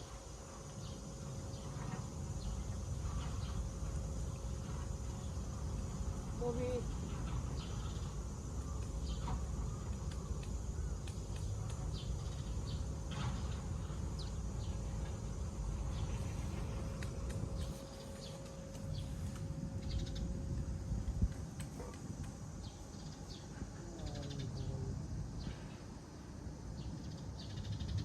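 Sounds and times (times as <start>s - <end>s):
high insect drone: 0.0s - 28.0s.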